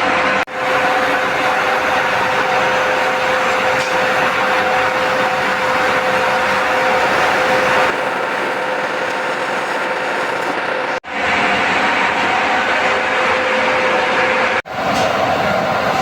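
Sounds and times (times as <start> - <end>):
power tool motor whine: 0.5 - 11.0.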